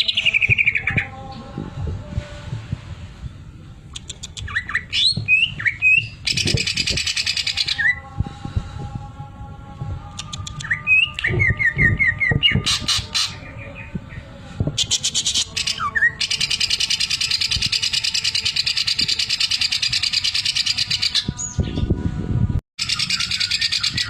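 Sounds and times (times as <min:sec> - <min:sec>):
bird singing chirps and whistles: 0:00.0 - 0:01.2, 0:04.0 - 0:08.1, 0:10.2 - 0:14.2, 0:14.8 - 0:22.0, 0:22.8 - 0:24.0.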